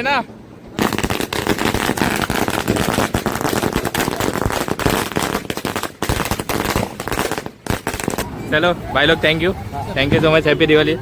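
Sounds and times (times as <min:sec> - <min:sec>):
firecrackers going off: 0:00.7 - 0:08.5.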